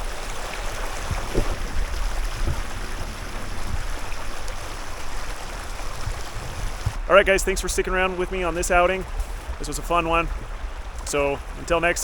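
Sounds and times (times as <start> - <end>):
creek rushing: 0.0 - 12.0
brief low thumps: 1.0 - 4.0, 6.0 - 7.1.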